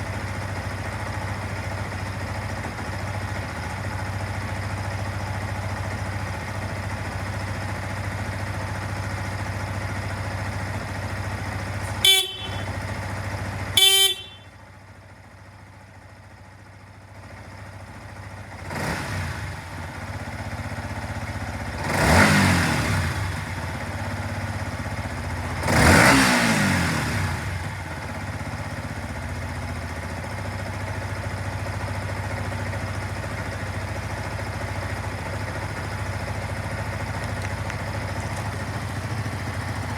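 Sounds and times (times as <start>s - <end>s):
motorcycle engine idling: 0.0s - 39.9s
short horn beeps: 11.8s - 12.8s, 13.8s - 14.5s
engine revving: 18.6s - 19.5s, 21.8s - 23.5s, 25.6s - 27.6s.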